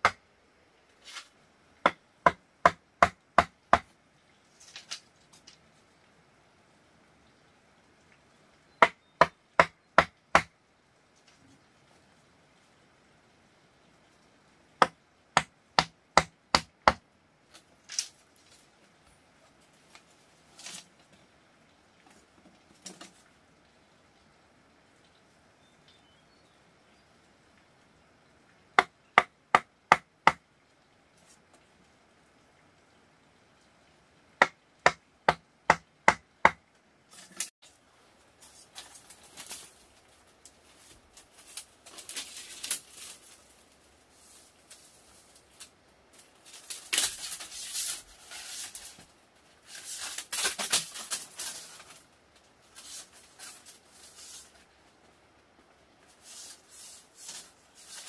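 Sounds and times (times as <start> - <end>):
rustling and scraping: 0.9 - 1.4, 4.4 - 5.9, 17.6 - 21.3, 37.1 - 58.0.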